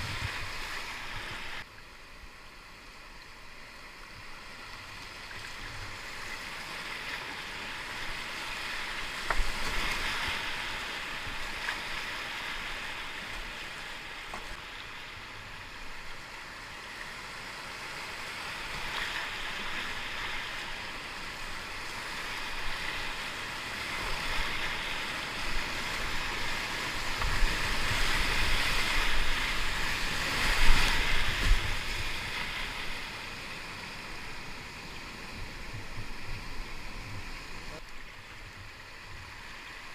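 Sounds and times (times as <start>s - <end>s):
whitewater rapids rushing: 18.0s - 39.9s.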